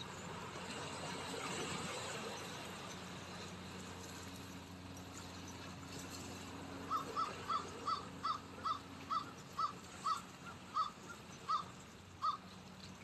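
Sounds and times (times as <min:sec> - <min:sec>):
bird short calls: 0:06.9 - 0:12.5.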